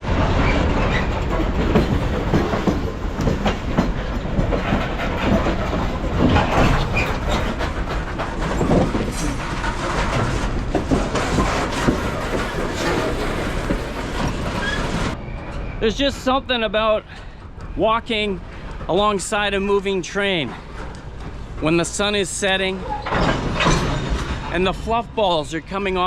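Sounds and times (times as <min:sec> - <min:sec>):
freight train wheels clattering: 0:00.0 - 0:26.0.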